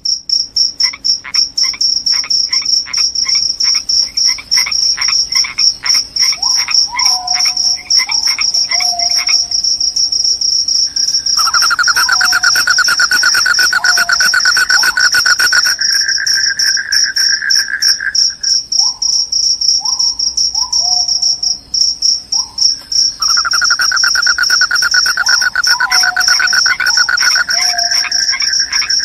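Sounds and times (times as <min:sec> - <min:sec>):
crickets chirping trill: 0:00.0 - 0:29.0
short rising calls: 0:23.2 - 0:28.0
lower pulsed trill: 0:23.2 - 0:28.7.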